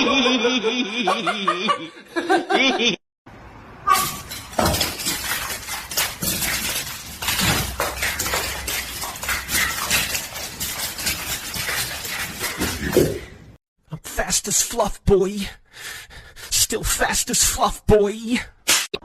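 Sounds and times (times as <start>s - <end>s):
hard objects clattering and clinking: 4.0s - 13.6s.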